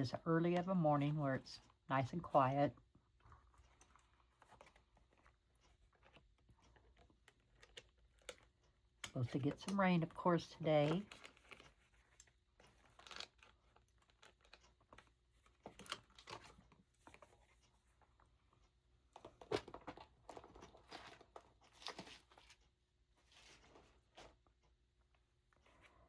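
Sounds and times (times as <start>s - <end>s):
paper rustling and clicks: 10.8s - 17.7s, 19.2s - 24.4s.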